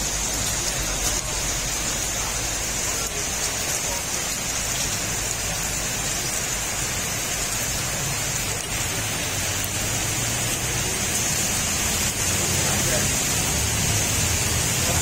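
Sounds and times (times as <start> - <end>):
heavy rain on wet paving: 0.0 - 15.0.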